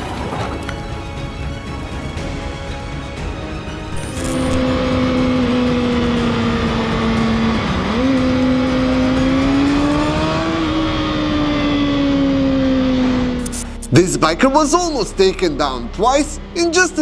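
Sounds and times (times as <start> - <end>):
motorcycle engine running: 3.9 - 13.8.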